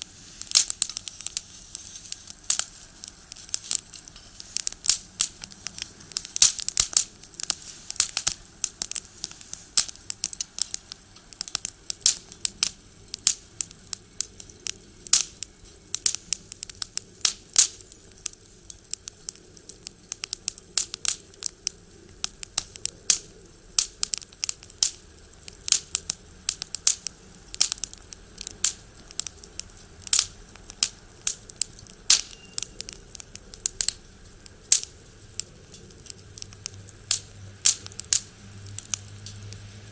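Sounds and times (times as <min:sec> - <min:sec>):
firewood crackling in stove: 0:00.0 - 0:39.9.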